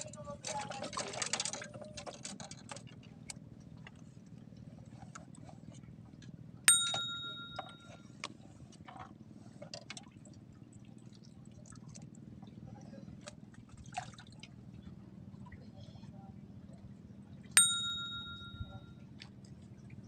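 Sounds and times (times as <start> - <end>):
water sounds: 0.0 - 20.0
low hum: 6.5 - 8.2, 14.4 - 20.0
metallic bell ding: 6.7 - 8.0, 17.6 - 18.9.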